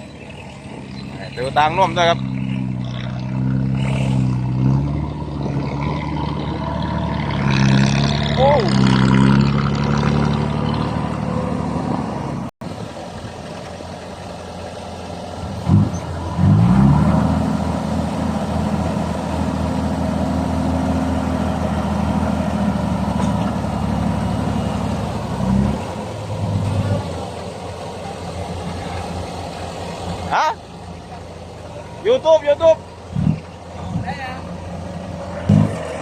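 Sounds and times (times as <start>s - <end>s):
heavy diesel engine revving: 0.0s - 36.0s.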